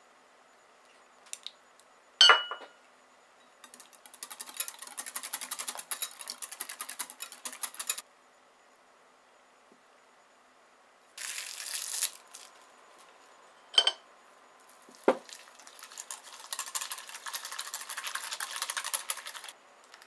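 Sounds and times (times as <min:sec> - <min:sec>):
utensil clinking on bowl: 0:02.2 - 0:02.7, 0:13.8 - 0:14.0
whisking in a bowl: 0:03.6 - 0:08.0, 0:15.2 - 0:19.6.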